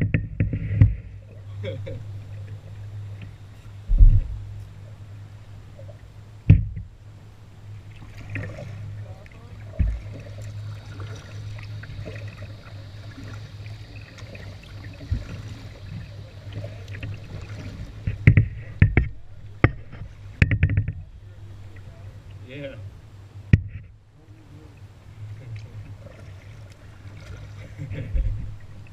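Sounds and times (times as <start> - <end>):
paddle dipping and dripping: 0.0 - 28.9
steady low hum: 0.0 - 28.9
knocks on kayak hull: 6.5 - 6.9.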